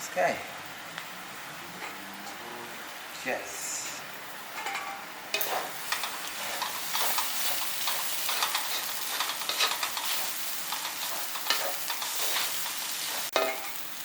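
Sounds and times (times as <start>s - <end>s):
noodles sizzling in a pan: 2.8s - 14.0s
utensil scraping and clicking on pan: 4.6s - 13.8s.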